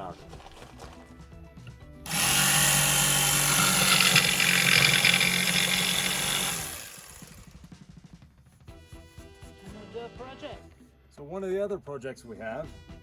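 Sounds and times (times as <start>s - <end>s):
power drill running: 2.1s - 7.6s.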